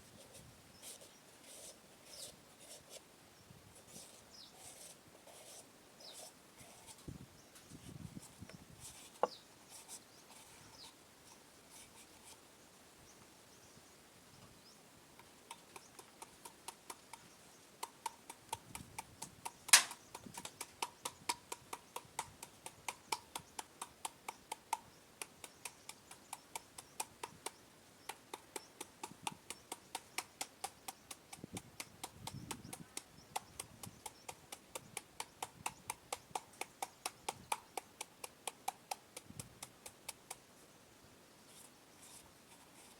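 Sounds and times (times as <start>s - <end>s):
pestle pounding in a mortar: 17.8s - 24.6s.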